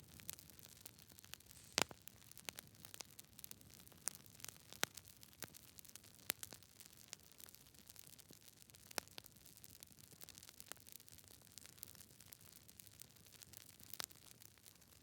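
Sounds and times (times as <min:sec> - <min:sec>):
faint steady hiss: 0:00.0 - 0:08.6
campfire crackling and popping: 0:00.0 - 0:15.0.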